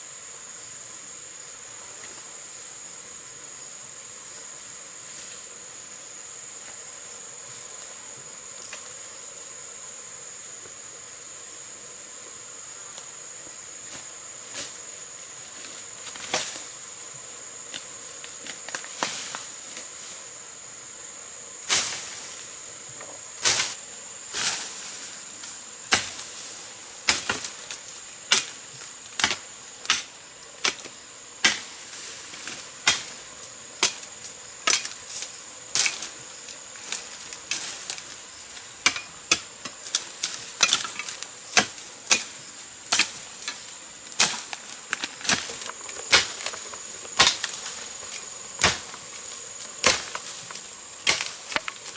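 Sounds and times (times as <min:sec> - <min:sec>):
high insect drone: 0:00.0 - 0:51.9
hand tool strikes: 0:38.8 - 0:43.6.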